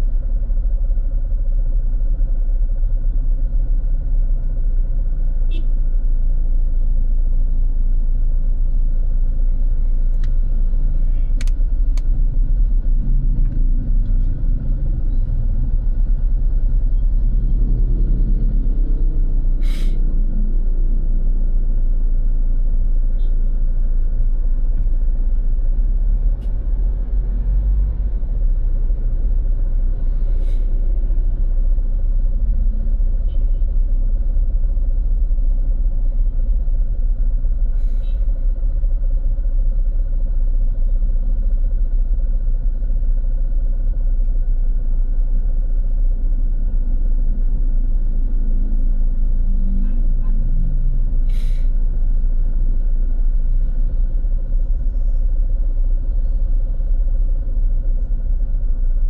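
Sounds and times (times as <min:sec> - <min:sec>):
road traffic rumble: 0:00.0 - 0:59.0
brief hiss: 0:51.3 - 0:51.7.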